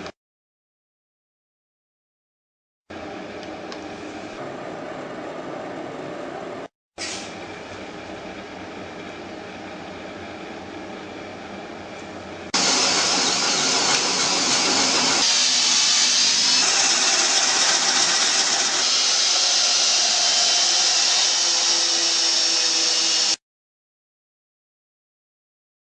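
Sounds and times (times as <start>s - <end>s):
cordless drill running: 12.6s - 23.4s.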